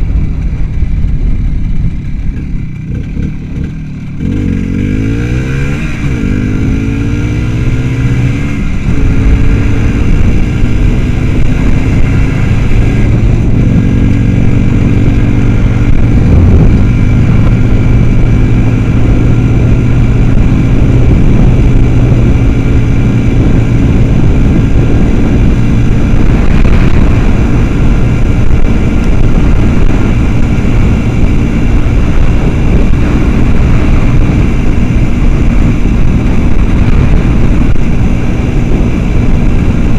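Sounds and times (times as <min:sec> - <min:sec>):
motorcycle engine accelerating: 0:00.0 - 0:39.9
road noise: 0:00.0 - 0:39.9
wind noise: 0:00.0 - 0:39.9.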